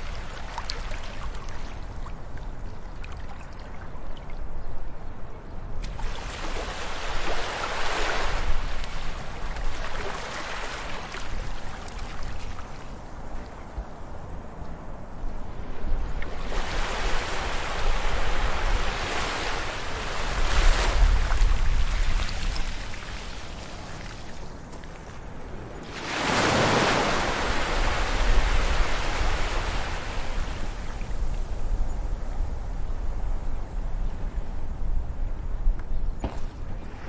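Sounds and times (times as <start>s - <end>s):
ocean waves breaking: 5.9s - 13.0s, 15.7s - 24.4s, 25.5s - 31.2s.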